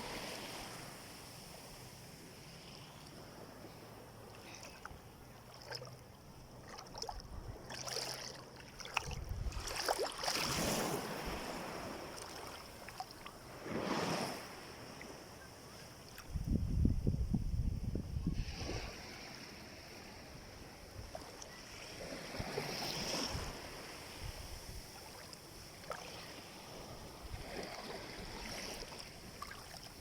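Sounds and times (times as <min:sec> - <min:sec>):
sea water washing and splashing: 0:04.4 - 0:15.1, 0:24.9 - 0:30.0.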